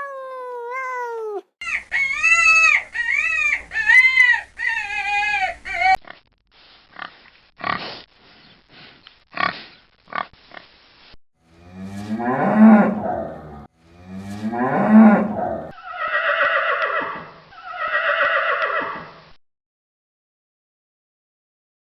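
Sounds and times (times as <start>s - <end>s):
animal grunts: 11.7s - 15.8s
higher wavering animal calls: 11.8s - 19.1s
long low animal calls: 14.5s - 16.3s.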